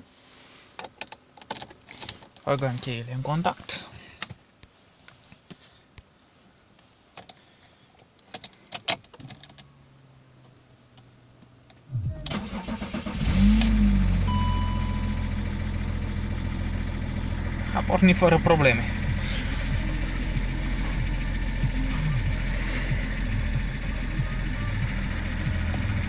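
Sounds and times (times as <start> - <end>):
faint hum: 11.8 - 26.0
diesel engine cranking: 11.9 - 26.0
diesel engine idling: 11.9 - 26.0.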